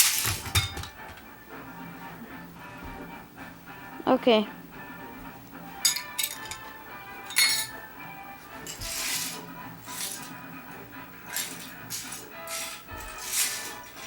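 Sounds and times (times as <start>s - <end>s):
toy cars clinking and clattering: 0.0s - 1.0s, 5.8s - 7.8s, 8.6s - 10.4s, 11.2s - 14.0s
background music: 0.0s - 14.0s.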